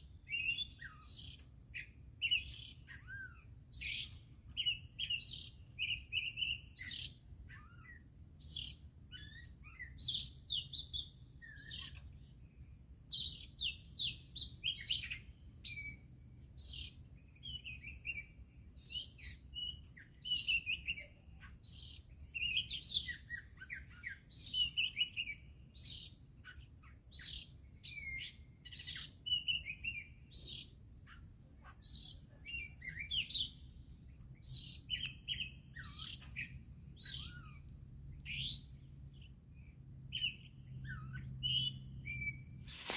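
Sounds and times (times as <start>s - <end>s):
birds singing and chirping: 0.0s - 12.4s, 13.1s - 42.9s.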